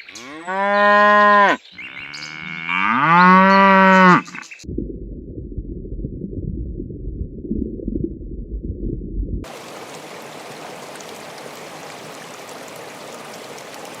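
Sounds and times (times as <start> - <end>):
loud muffled low sound: 4.7 - 9.4.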